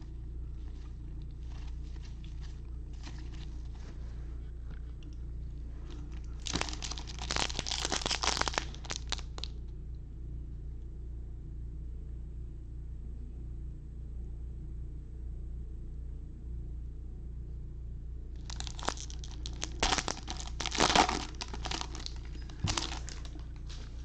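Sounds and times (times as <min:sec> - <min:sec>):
faint card handling: 0:00.6 - 0:04.3, 0:18.4 - 0:24.0
wrapper crinkling and tearing: 0:06.1 - 0:09.5, 0:18.4 - 0:24.0.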